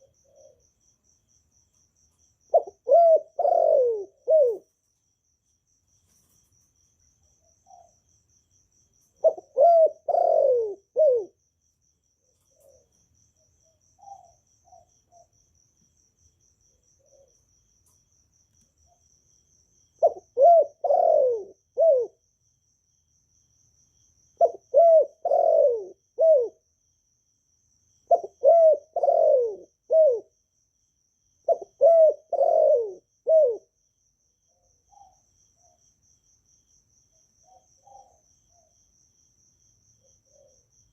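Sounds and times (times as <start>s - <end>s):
dove cooing: 0.0s - 0.7s, 2.5s - 4.8s, 9.2s - 11.4s, 12.3s - 13.0s, 13.7s - 15.3s, 16.8s - 17.4s, 20.0s - 22.2s, 24.4s - 26.6s, 28.1s - 30.3s, 31.4s - 33.8s, 37.5s - 38.7s.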